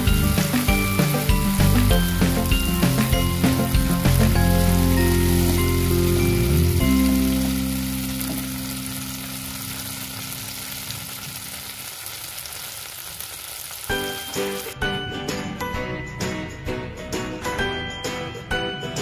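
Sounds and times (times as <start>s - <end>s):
music with long held notes: 0.0s - 11.4s
sauce sizzling in hot oil: 0.0s - 14.8s.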